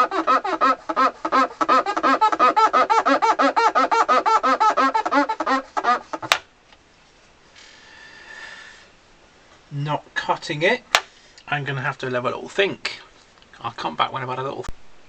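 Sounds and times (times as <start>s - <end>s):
cloth rubbing squeaks: 0.0s - 6.3s.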